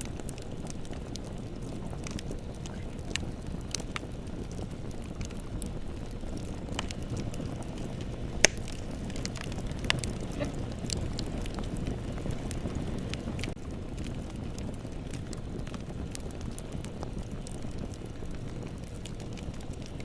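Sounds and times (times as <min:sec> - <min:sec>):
bonfire rumble: 0:00.0 - 0:20.0
burning wood crackling: 0:00.0 - 0:20.0
loud fire pop: 0:00.9 - 0:17.2.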